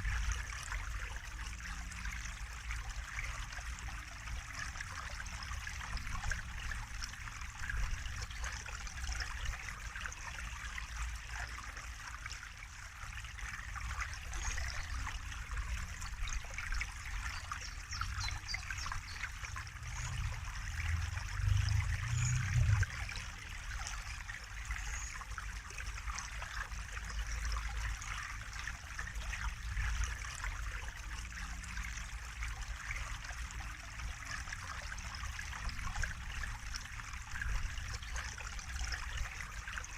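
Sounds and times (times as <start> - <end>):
water trickling and splashing: 0.0 - 39.9
low rumble: 19.5 - 23.4.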